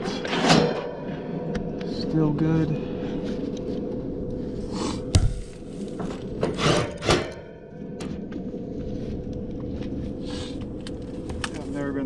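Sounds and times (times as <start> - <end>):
faint steady hum: 0.0 - 12.0
scraping and rubbing: 4.4 - 7.1.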